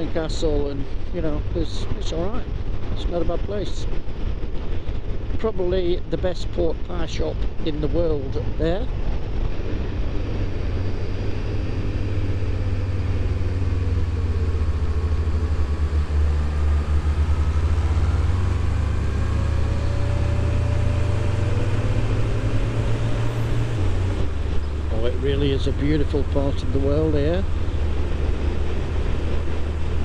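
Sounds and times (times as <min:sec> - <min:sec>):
wind noise: 0:00.0 - 0:30.0
motorcycle engine running: 0:08.6 - 0:30.0.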